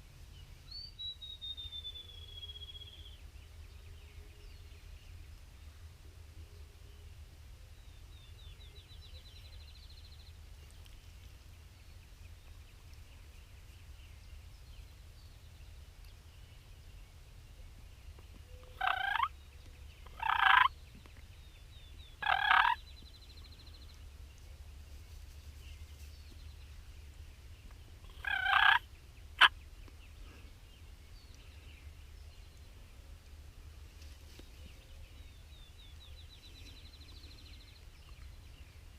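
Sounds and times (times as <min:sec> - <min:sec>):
turkey gobbling: 0:18.7 - 0:19.3, 0:20.1 - 0:20.7, 0:22.2 - 0:22.8, 0:28.1 - 0:28.8.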